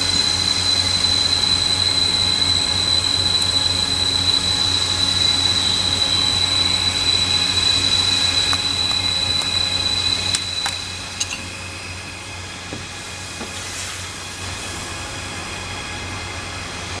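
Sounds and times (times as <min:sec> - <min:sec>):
welding equipment whine: 0:00.0 - 0:17.0.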